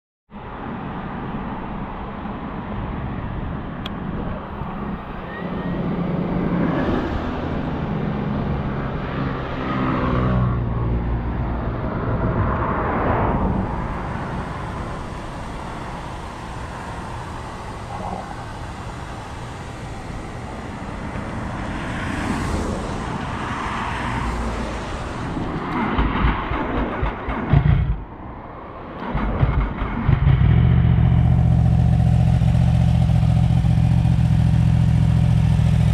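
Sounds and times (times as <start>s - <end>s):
motorcycle engine revving: 29.0s - 35.9s.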